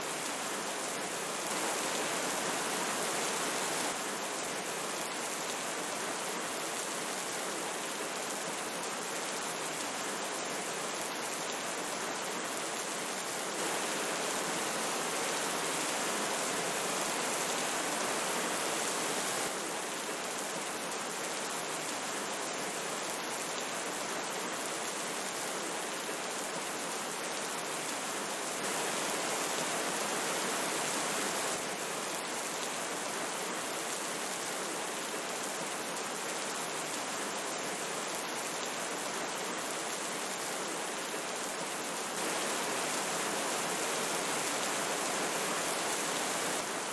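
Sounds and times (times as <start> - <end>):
rain falling: 0.0 - 46.9
river water rushing: 1.4 - 4.0, 13.5 - 19.6.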